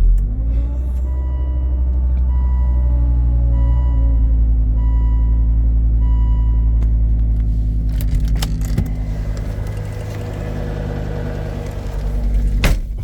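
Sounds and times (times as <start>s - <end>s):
diesel engine idling: 0.0s - 13.0s
sharp clicks and rattles: 7.1s - 12.7s.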